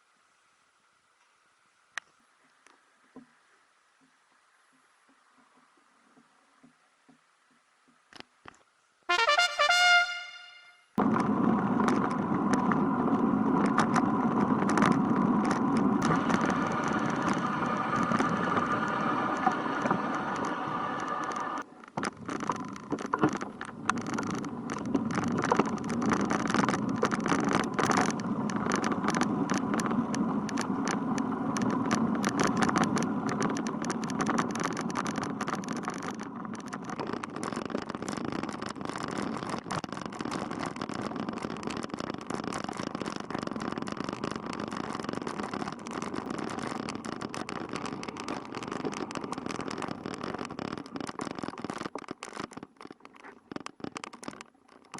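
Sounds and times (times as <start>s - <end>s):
sharp crackles and knocks: 1.2s - 9.7s, 11.0s - 54.9s
road traffic noise: 9.1s - 21.7s.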